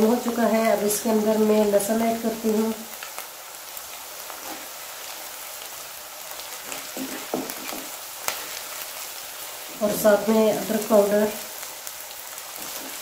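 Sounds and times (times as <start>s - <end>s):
onions sizzling in hot oil: 0.0s - 13.0s
wooden spatula knocking pan: 6.7s - 8.0s.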